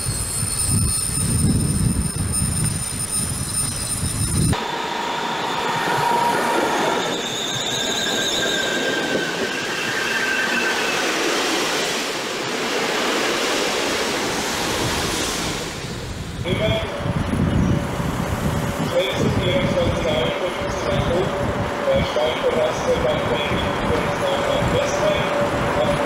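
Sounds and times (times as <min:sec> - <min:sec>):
train wheels squealing: 0:00.0 - 0:11.7
freight train rumbling past: 0:00.0 - 0:26.0
passenger train running noise: 0:00.0 - 0:26.0.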